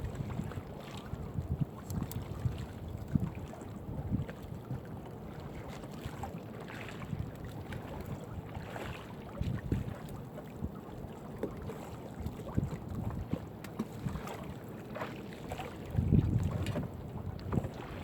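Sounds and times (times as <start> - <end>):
wind buffeting microphone: 0.0 - 4.8, 12.3 - 13.4, 15.6 - 18.0.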